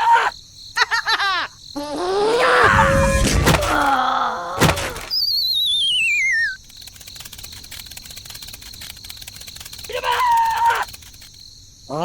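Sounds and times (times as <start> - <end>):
cartoon thuds: 2.5 - 5.2
wobbling whistle sliding down: 2.6 - 3.8, 5.0 - 6.6.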